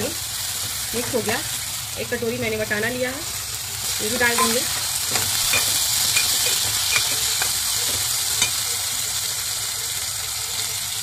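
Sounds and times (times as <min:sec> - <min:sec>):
vegetables sizzling in hot oil: 0:00.0 - 0:11.0
ladle scraping and clinking pot: 0:04.4 - 0:08.7.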